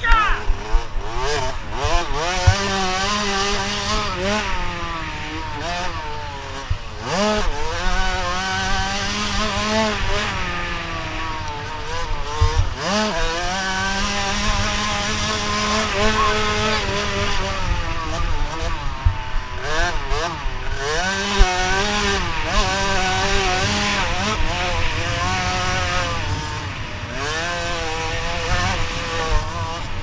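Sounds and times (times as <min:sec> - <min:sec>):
motocross bike engines revving: 0:00.0 - 0:30.0
steady engine note: 0:13.7 - 0:18.9.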